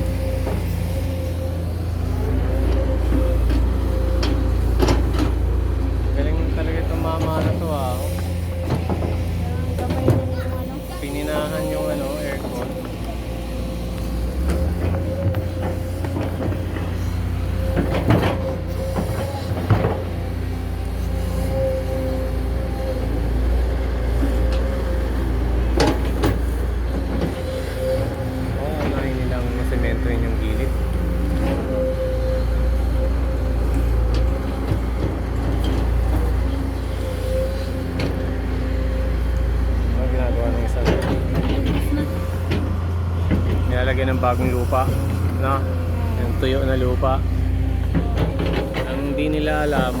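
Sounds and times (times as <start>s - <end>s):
constant whine: 0.0s - 50.0s
excavator diesel engine running: 0.0s - 50.0s.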